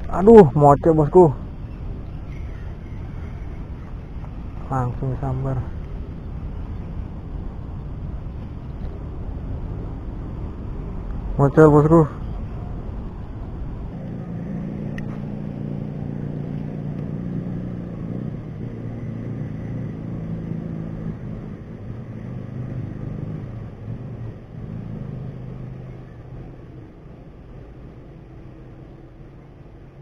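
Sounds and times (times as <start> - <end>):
vehicle engine humming: 0.0 - 30.0.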